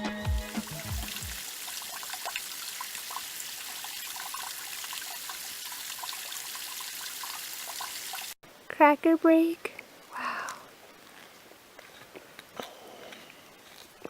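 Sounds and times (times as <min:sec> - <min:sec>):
background music: 0:00.0 - 0:01.4
flowing creek rushing: 0:00.4 - 0:08.4.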